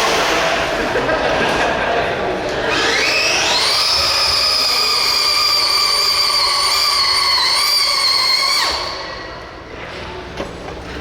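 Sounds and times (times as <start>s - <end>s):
electric motor high whine: 2.6s - 9.2s.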